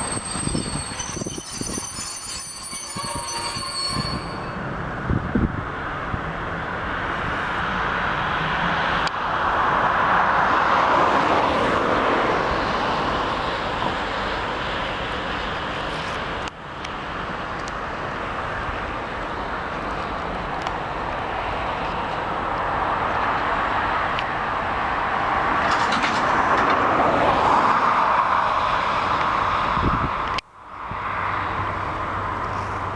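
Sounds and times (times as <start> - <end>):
freight train rolling past: 0.0 - 15.8.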